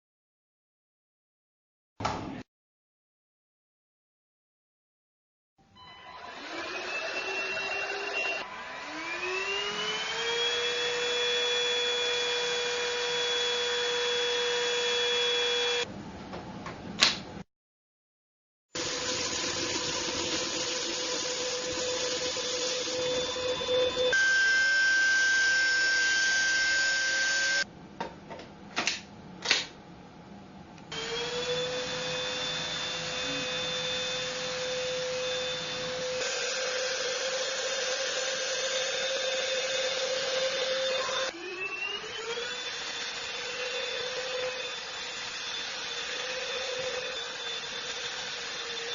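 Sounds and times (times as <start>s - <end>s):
handheld vacuum cleaner motor whining: 5.9s - 15.9s, 18.8s - 27.7s, 30.9s - 48.9s.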